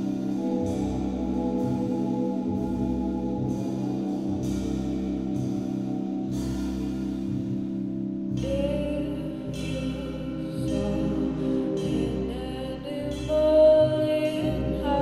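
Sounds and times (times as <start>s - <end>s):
keyboard chords: 0.0s - 15.0s
low beat: 0.0s - 15.0s
person singing: 8.4s - 15.0s.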